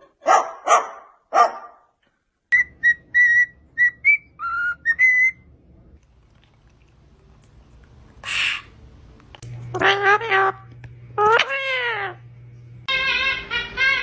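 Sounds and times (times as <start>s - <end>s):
parrot whistling: 2.5s - 5.4s, 12.9s - 14.0s
parrot barking: 9.7s - 12.2s, 12.9s - 14.0s.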